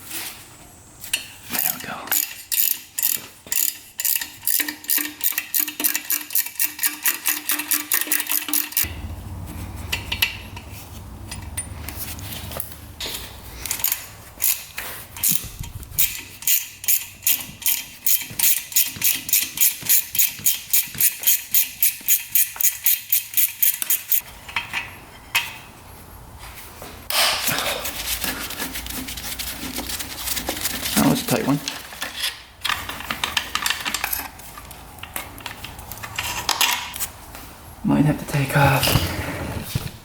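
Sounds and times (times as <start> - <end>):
socket ratchet clicking: 1.6 - 8.9, 13.6 - 24.2
short scrape: 38.7 - 40.0.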